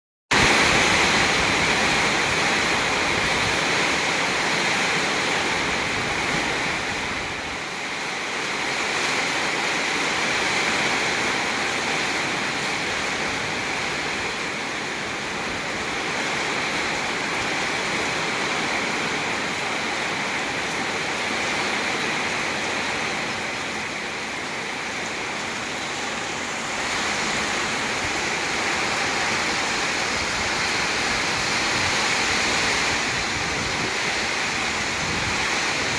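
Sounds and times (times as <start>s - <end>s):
heavy rain pouring: 0.3s - 35.9s.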